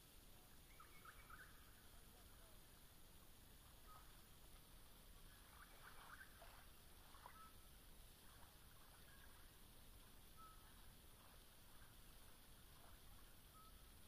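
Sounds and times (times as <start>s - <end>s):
faint steady hiss: 0.0s - 14.0s
faint short bird calls: 5.3s - 7.6s.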